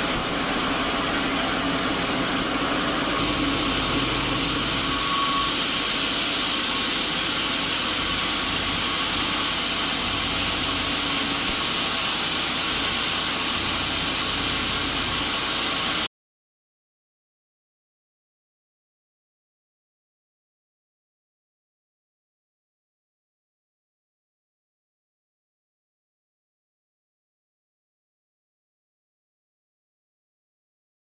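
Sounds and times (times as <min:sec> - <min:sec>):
woodworking machinery running: 0:00.0 - 0:16.1.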